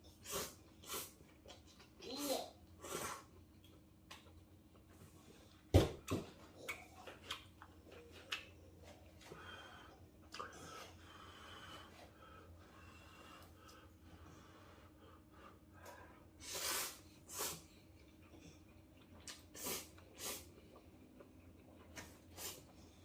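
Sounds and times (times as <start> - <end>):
noodles slurped and chewed: 0.0 - 2.0, 16.4 - 23.0.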